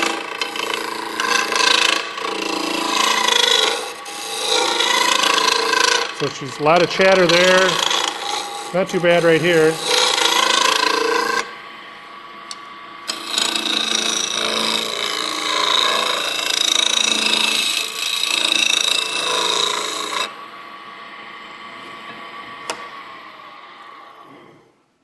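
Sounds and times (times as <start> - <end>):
gouge scraping wood on lathe: 0.0 - 11.5, 13.1 - 20.3
wood lathe running: 0.0 - 20.5.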